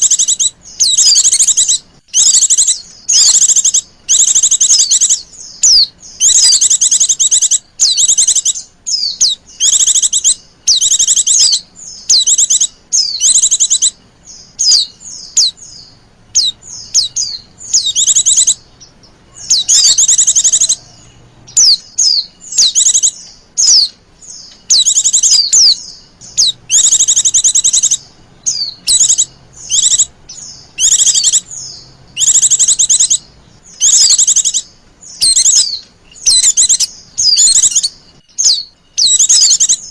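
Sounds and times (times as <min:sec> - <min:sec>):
bird high rapid trills: 0:00.0 - 0:39.9
bird sweeping chip notes: 0:14.6 - 0:39.9.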